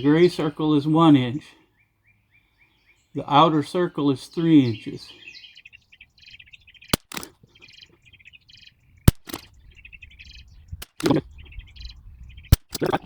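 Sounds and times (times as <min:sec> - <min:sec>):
duller report: 0:00.0 - 0:01.7, 0:03.1 - 0:05.4, 0:09.1 - 0:11.8
small birds chirping: 0:00.0 - 0:13.0
rifle shots cracking: 0:06.9 - 0:07.4, 0:09.1 - 0:09.6, 0:12.5 - 0:13.0.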